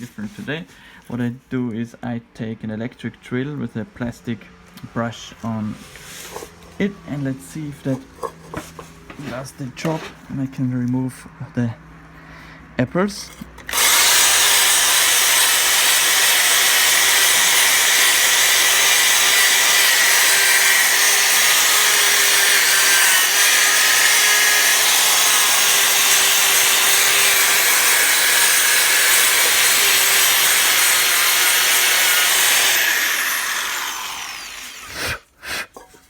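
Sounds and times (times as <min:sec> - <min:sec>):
electric drill motor: 0:13.6 - 0:35.1.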